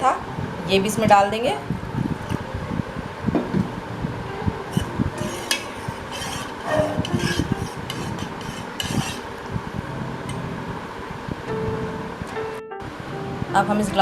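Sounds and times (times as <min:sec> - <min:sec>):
spoon knocking and scraping pan: 0:04.7 - 0:09.4.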